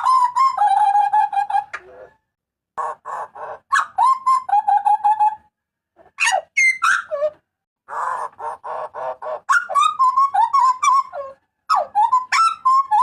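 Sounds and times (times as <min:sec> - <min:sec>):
bird calling with whistles: 0:09.5 - 0:13.0.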